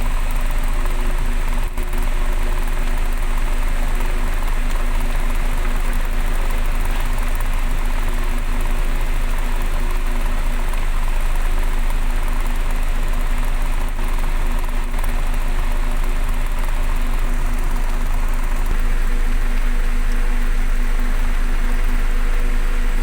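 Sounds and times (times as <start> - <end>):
vehicle engine humming: 14.6 - 23.0.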